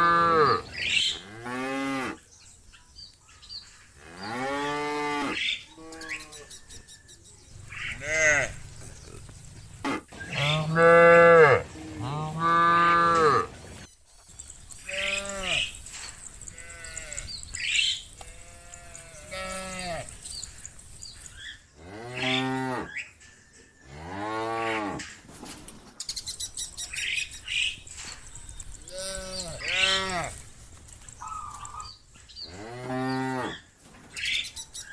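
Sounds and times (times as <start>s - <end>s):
cows mooing: 0.0s - 2.2s, 4.0s - 6.5s, 7.7s - 13.5s, 14.8s - 20.6s, 21.8s - 23.0s, 23.9s - 25.2s, 28.8s - 30.5s, 32.5s - 33.6s.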